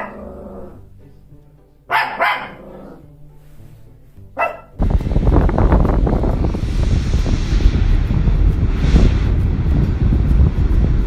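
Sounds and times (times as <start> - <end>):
dog barking: 0.0 - 0.6, 1.9 - 3.0, 4.4 - 4.8
wind rumble on microphone: 4.8 - 11.0.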